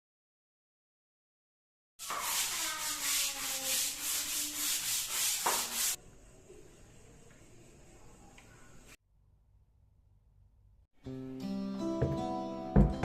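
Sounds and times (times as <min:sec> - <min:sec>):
rhythmic rubbing strokes: 0:02.0 - 0:06.0.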